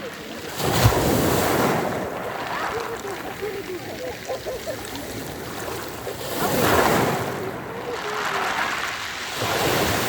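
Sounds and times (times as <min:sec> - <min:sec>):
surf breaking on pebble beach: 0:00.4 - 0:03.3, 0:05.3 - 0:10.0.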